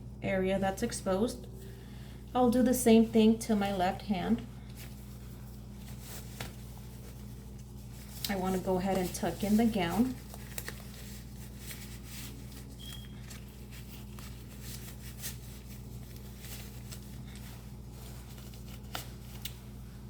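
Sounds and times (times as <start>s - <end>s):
low electrical hum: 0.0s - 20.0s
gown and gloves rustling: 1.6s - 20.0s.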